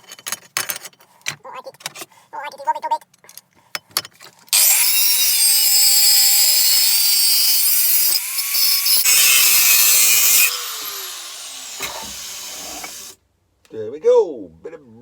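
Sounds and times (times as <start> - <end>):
angle grinder cutting metal: 4.5 - 13.2
grinder motor winding down: 4.6 - 13.2.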